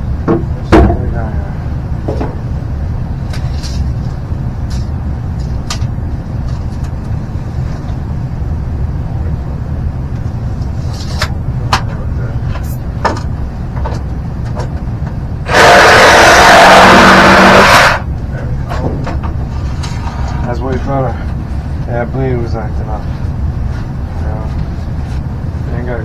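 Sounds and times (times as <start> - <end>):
power saw cutting pipe: 15.5 - 18.1.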